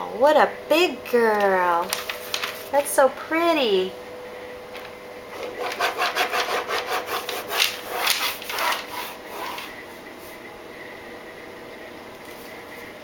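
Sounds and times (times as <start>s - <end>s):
drawing tool scratching paper: 5.4s - 9.7s.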